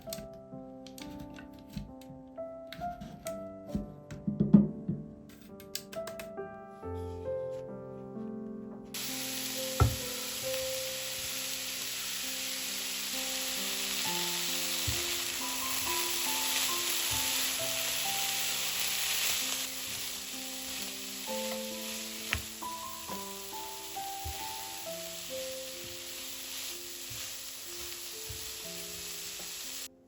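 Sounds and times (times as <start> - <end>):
food sizzling in frying pan: 9.0 - 30.0.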